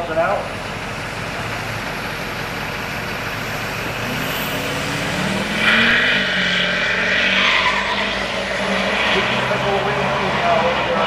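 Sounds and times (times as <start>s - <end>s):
racing engines accelerating: 3.4s - 11.0s.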